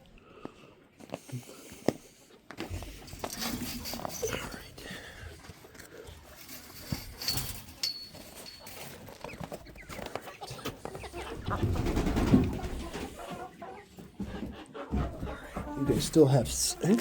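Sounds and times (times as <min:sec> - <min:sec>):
chickens clucking: 0:00.8 - 0:17.0
rustling and handling noise: 0:01.0 - 0:11.1, 0:15.0 - 0:17.0.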